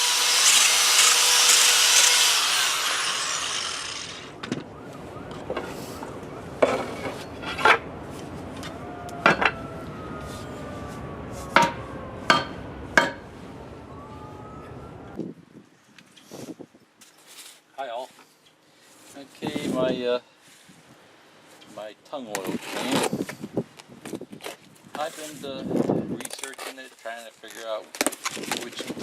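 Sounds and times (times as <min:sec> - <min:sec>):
power tool whirring: 0:00.0 - 0:04.4
knocks of wood and tools: 0:08.6 - 0:09.6, 0:11.6 - 0:13.2.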